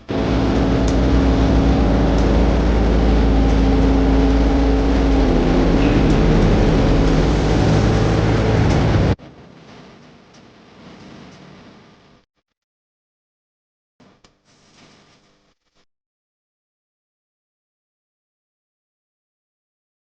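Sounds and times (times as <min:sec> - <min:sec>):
diesel machinery engine hum: 0:00.0 - 0:09.2.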